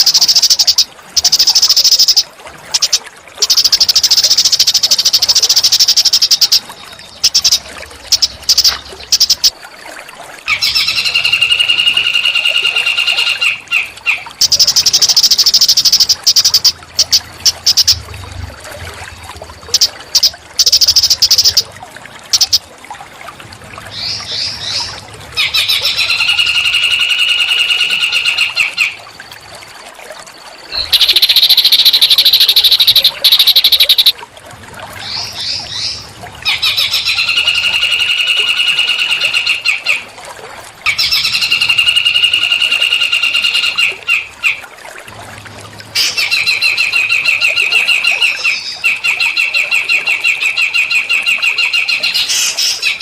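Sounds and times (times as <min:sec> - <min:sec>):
songbirds singing buzzy trills: 0:00.0 - 0:09.6, 0:10.5 - 0:18.1, 0:19.7 - 0:21.7, 0:22.3 - 0:22.6, 0:30.6 - 0:34.2.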